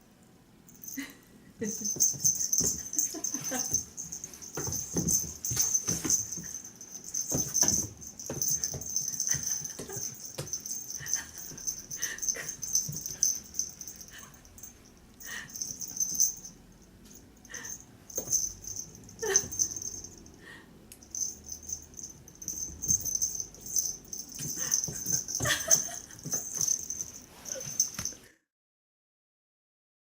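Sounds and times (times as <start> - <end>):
kitten paws scrabbling on floor: 1.9 - 12.0.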